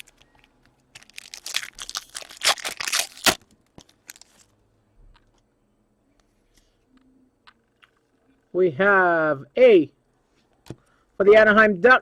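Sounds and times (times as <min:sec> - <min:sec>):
wrapper crinkling and tearing: 0:00.0 - 0:00.2, 0:00.9 - 0:04.5.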